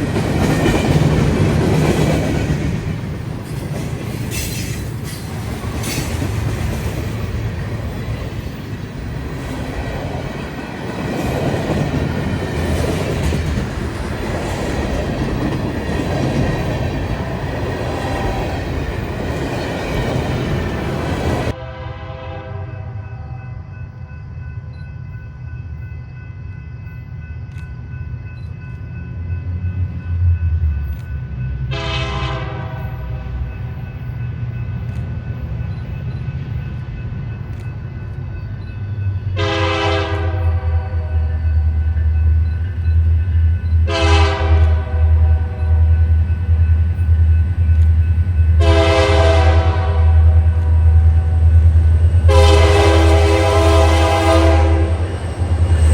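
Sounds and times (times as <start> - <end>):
air horn blasts: 21.6 - 23.4, 31.7 - 33.0, 39.4 - 41.4, 43.9 - 45.8, 48.6 - 50.9, 52.3 - 55.0.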